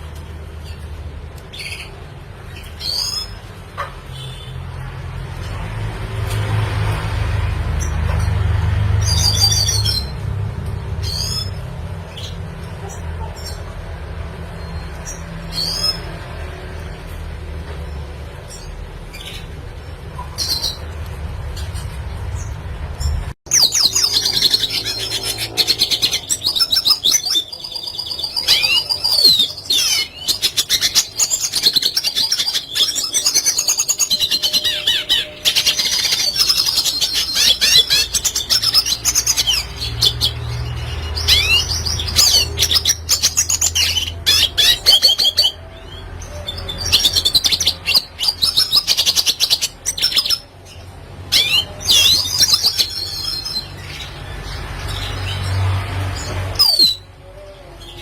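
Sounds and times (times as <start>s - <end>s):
bird twittering song: 8.9s - 10.3s, 18.4s - 58.0s.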